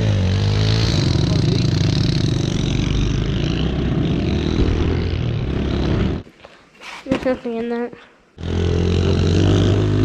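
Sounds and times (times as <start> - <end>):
small motorcycle engine running: 0.0 - 6.2.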